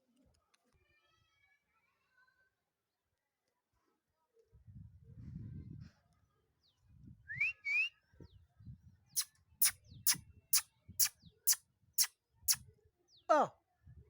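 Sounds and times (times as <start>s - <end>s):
wind rumble on microphone: 4.5s - 6.1s, 6.8s - 7.5s, 8.1s - 11.3s
person whistling: 7.3s - 7.9s.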